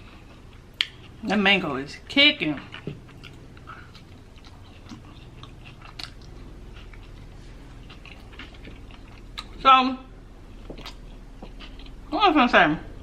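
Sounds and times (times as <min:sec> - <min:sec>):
person chewing food: 0:00.0 - 0:01.4, 0:02.6 - 0:09.6, 0:10.4 - 0:12.1.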